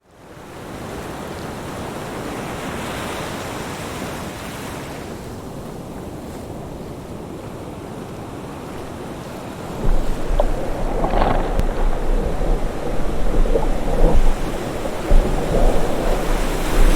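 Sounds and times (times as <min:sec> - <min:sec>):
ocean surf hissing: 0:09.5 - 0:16.9
deep rumble with crackling: 0:09.7 - 0:16.9.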